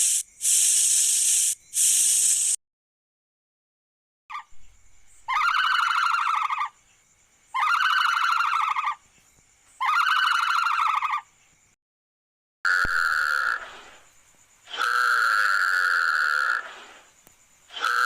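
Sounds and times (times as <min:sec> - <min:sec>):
animal making buzzy calls: 0:14.7 - 0:16.8, 0:17.7 - 0:18.0.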